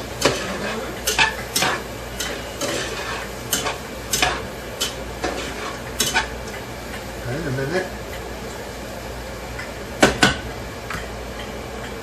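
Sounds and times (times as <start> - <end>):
mushrooms sizzling in a pan: 0.0 - 9.3
utensil scraping against pan: 0.2 - 6.4.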